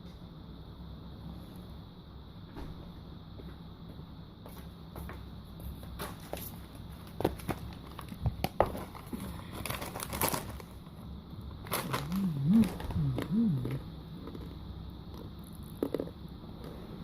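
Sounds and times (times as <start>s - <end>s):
plastic snack packet crinkling: 7.9s - 10.8s, 11.6s - 13.0s
low voice-like sound: 11.8s - 13.9s.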